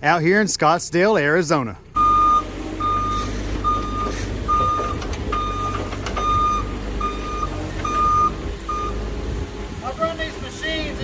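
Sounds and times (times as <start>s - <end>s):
diesel engine rumble: 0.0s - 11.0s
reversing alarm beeping: 2.0s - 9.0s.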